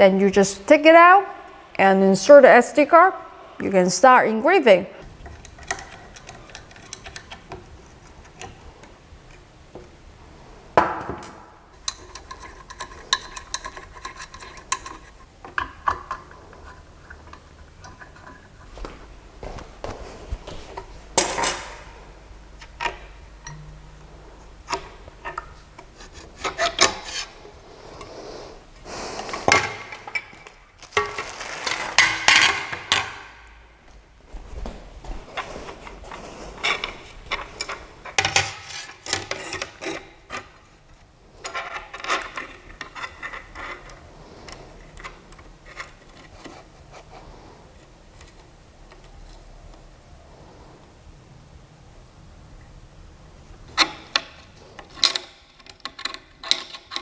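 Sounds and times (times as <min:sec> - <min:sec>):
small parts rubbing and clicking: 0:11.8 - 0:18.8, 0:22.6 - 0:33.0, 0:35.3 - 0:47.4.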